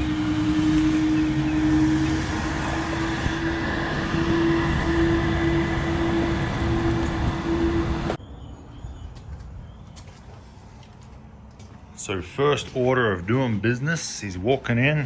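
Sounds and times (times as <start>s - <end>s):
moving car road noise: 0.0s - 8.2s.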